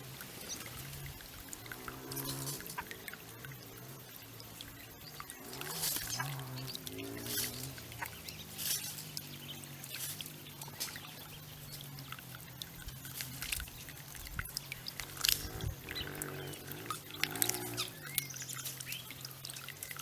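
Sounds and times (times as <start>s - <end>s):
birds splashing in water: 0.0s - 20.0s
wing flutters: 0.0s - 20.0s.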